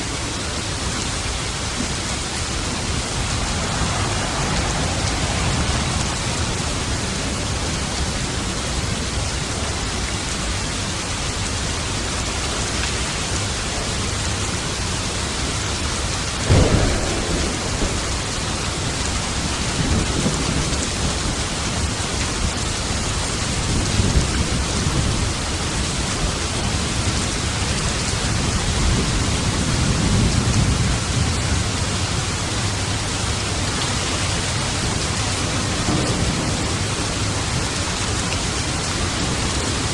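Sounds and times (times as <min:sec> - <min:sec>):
heavy rain: 0:00.0 - 0:39.9
rolling thunder rumbles: 0:00.2 - 0:11.2, 0:13.3 - 0:39.9
sharp thunderclap: 0:01.6 - 0:09.1, 0:16.3 - 0:22.6, 0:34.3 - 0:39.9.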